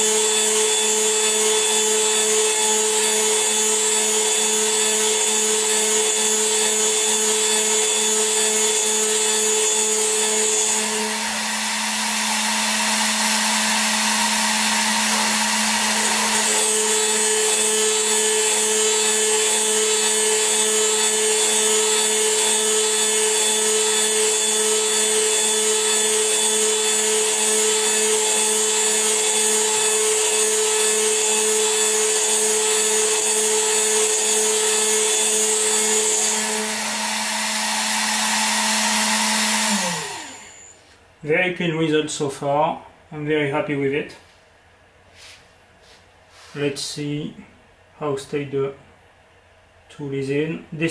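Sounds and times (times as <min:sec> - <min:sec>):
milling machine spindle whine: 0:00.0 - 0:40.7.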